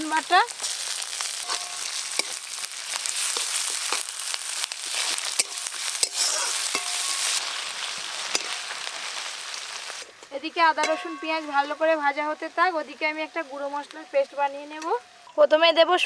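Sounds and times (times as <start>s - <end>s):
onions sizzling in hot oil: 0.0s - 15.5s
metal spatula scraping wok: 0.6s - 8.9s, 10.0s - 12.0s.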